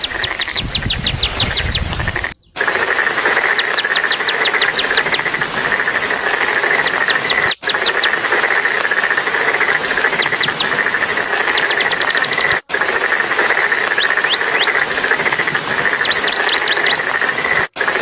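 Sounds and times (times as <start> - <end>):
small songbird singing: 0.0 - 2.6, 3.4 - 5.2, 7.0 - 8.1, 14.0 - 14.8, 16.0 - 17.0.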